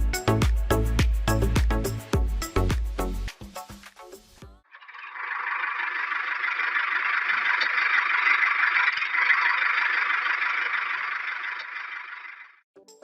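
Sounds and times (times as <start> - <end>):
toy tractor rattling and scraping: 4.7 - 12.6.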